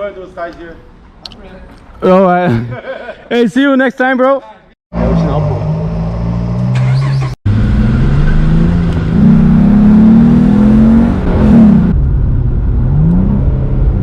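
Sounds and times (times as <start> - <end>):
car engine accelerating hard: 5.0 - 12.0.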